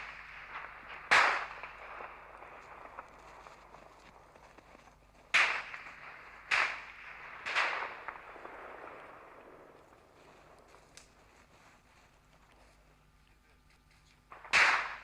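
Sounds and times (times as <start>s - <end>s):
gunshots with echo: 0.0s - 4.4s, 5.2s - 10.6s, 14.3s - 15.0s.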